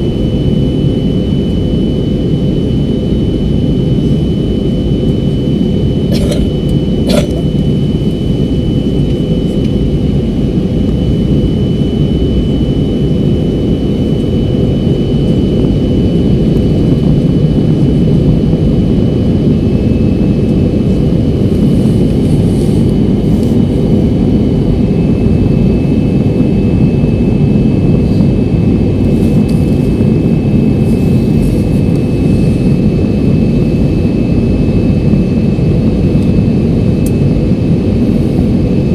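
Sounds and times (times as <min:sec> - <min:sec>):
thin high whine: 0:00.0 - 0:16.5, 0:18.4 - 0:38.9
airliner cabin rush: 0:06.1 - 0:07.7, 0:28.0 - 0:33.6.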